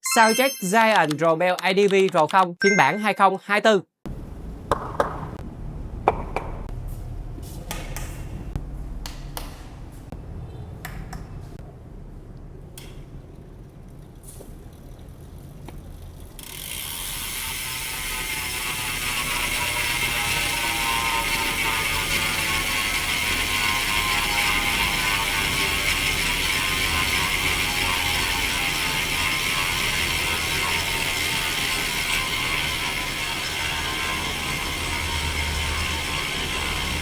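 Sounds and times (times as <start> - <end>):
bike freehub buzzing: 12.6 - 37.0.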